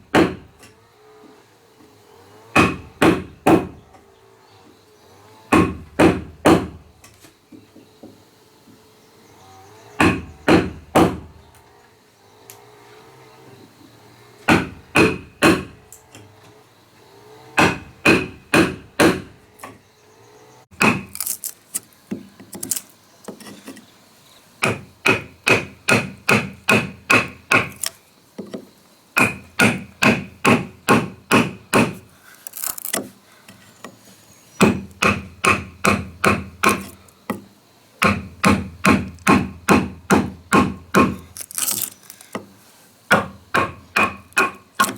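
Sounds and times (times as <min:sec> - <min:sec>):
hammer striking wood: 0:00.1 - 0:00.5, 0:02.5 - 0:03.8, 0:05.5 - 0:06.8, 0:10.0 - 0:11.3, 0:14.5 - 0:15.8, 0:17.6 - 0:19.8, 0:20.7 - 0:21.2, 0:24.6 - 0:32.0, 0:34.6 - 0:41.2, 0:43.1 - 0:44.9.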